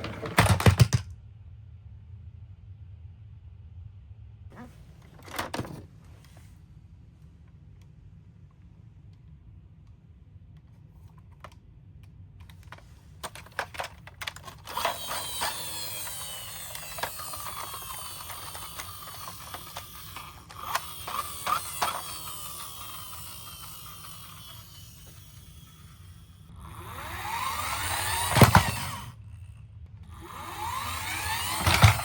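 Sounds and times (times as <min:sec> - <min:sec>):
plastic toy vehicles clattering: 0:00.0 - 0:01.1, 0:04.6 - 0:05.9, 0:12.5 - 0:29.4, 0:30.1 - 0:32.0
whirring falling in pitch: 0:14.4 - 0:29.5, 0:30.1 - 0:32.0.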